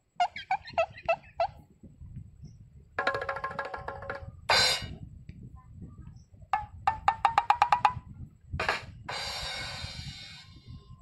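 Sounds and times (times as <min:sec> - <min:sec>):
rapid pitched knocks: 0:03.0 - 0:04.3, 0:06.6 - 0:08.1.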